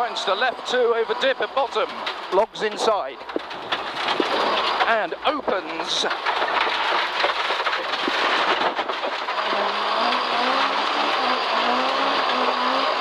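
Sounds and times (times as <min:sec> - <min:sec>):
tyre and road noise: 0:00.0 - 0:13.0
rally car engine revving: 0:08.2 - 0:13.0.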